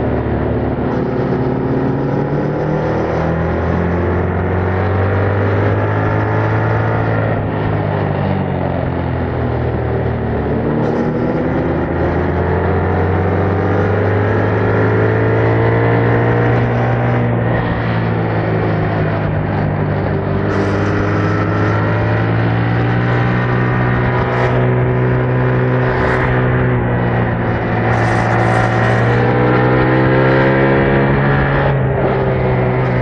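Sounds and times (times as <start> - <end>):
motorcycle engine running: 5.4 - 33.0.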